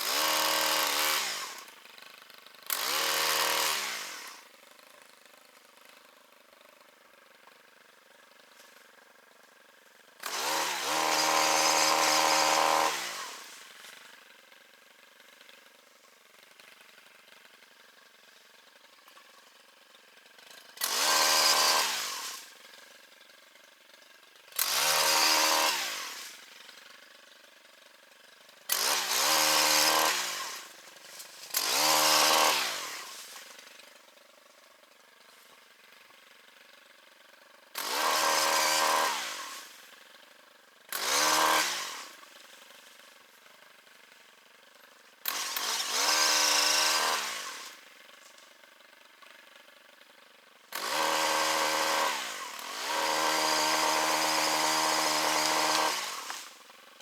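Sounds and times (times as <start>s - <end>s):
chainsaw revving: 0.0s - 6.0s, 10.2s - 14.3s, 18.8s - 23.2s, 23.8s - 40.2s, 40.8s - 48.4s, 50.6s - 57.0s.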